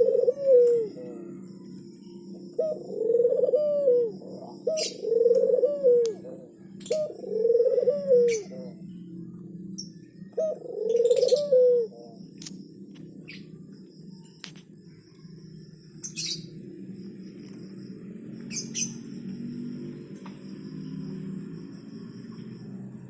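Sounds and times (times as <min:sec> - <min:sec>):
faint high chirps and ticks: 0:00.0 - 0:03.0, 0:12.1 - 0:23.0
dove cooing: 0:00.0 - 0:12.6.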